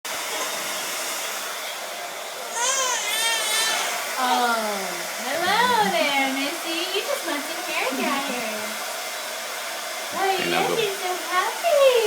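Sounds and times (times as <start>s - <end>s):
hair dryer blowing: 0.1s - 12.0s
baby squealing: 2.6s - 4.0s.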